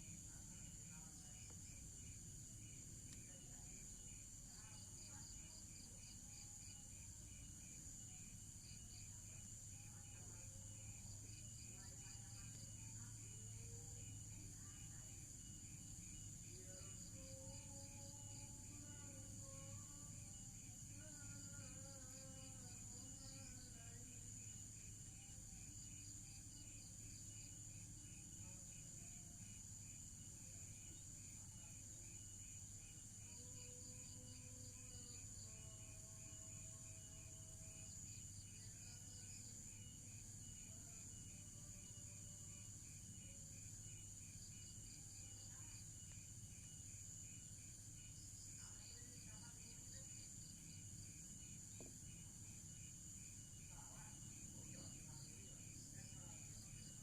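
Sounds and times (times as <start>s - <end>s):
insects chirping: 0.0s - 57.0s.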